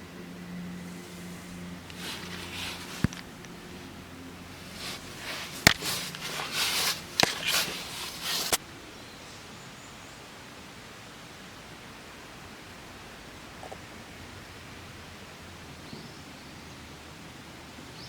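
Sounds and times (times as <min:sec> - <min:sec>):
faint steady hiss: 0:00.0 - 0:18.0
rustling handling noise: 0:00.7 - 0:08.6.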